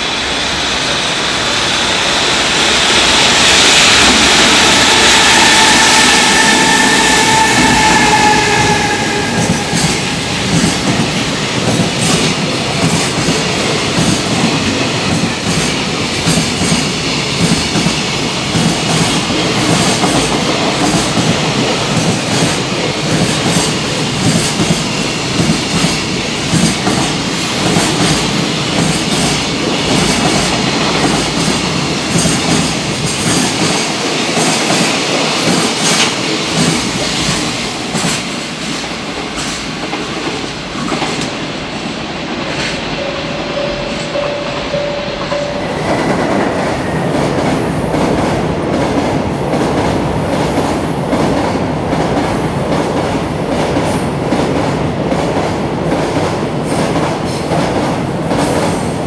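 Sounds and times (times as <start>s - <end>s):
train wheels clattering: 4.0s - 41.4s.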